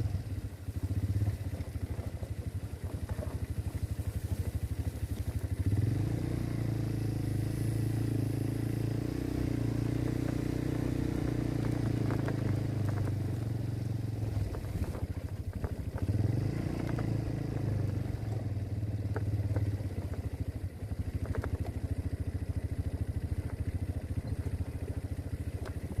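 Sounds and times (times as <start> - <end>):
quad bike engine revving: 0.0 - 20.3.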